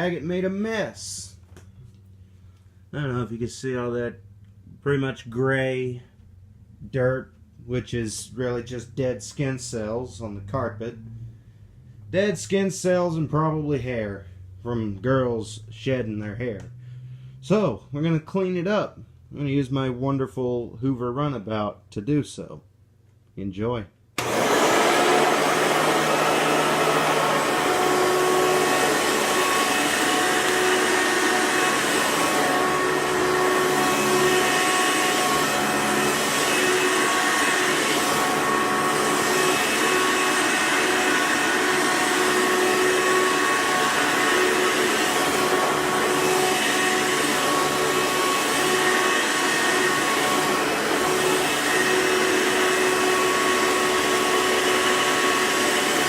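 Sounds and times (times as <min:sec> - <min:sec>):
vacuum cleaner running: 0:24.2 - 0:56.0.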